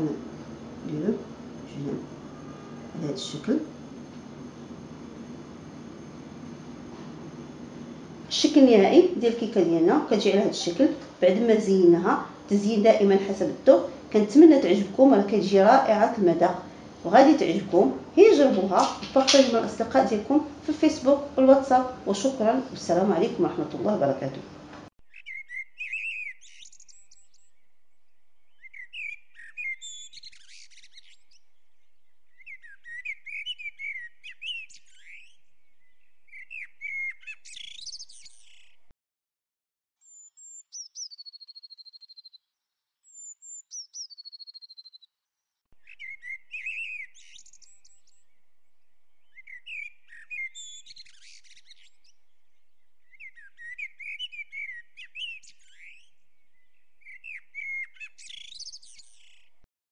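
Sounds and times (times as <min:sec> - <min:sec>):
bird chirping and twittering: 0:25.0 - 0:38.9, 0:40.0 - 0:45.1, 0:45.8 - 0:59.6
falling whistled bird notes: 0:25.1 - 0:27.7, 0:28.4 - 0:31.4, 0:32.3 - 0:38.7, 0:45.8 - 0:48.4, 0:49.2 - 0:52.2, 0:53.0 - 0:59.3.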